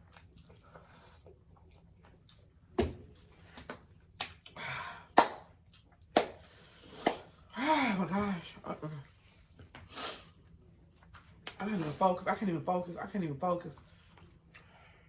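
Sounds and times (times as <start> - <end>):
hissing mouth sound: 9.9 - 10.3.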